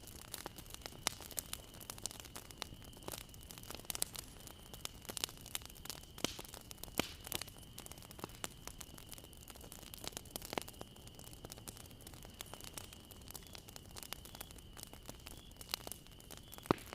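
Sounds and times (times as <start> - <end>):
low steady hiss: 0.0 - 16.9
wood fire crackling: 0.0 - 16.9.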